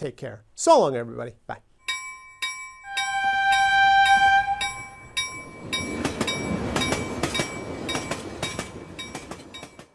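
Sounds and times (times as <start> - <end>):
bell ringing: 1.8 - 9.9
train wheels clacking: 2.5 - 9.9.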